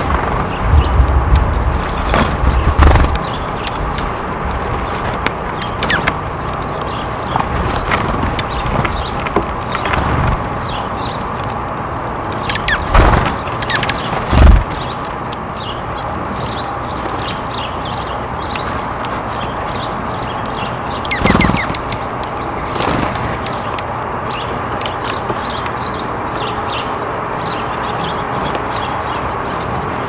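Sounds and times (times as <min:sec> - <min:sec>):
small birds chirping: 0:00.0 - 0:30.0
rustling thumps near microphone: 0:14.1 - 0:14.9.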